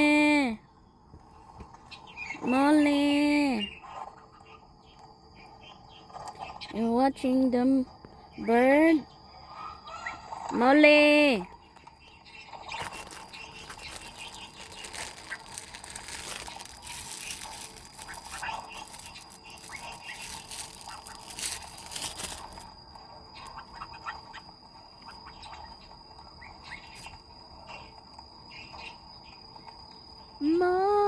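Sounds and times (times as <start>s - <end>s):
high insect trill: 0.0s - 31.0s
birds chirping: 8.3s - 22.7s.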